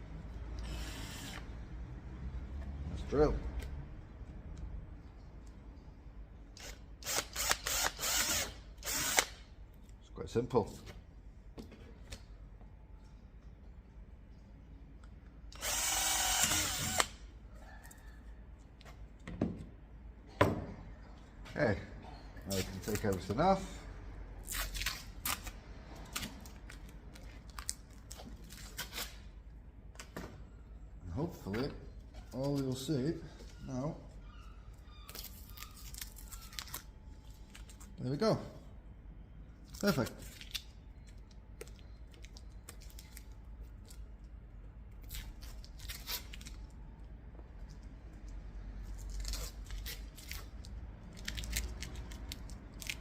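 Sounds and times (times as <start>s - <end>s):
masking tape peeling: 24.4s - 29.3s, 34.8s - 37.9s, 45.0s - 46.8s, 48.8s - 53.0s.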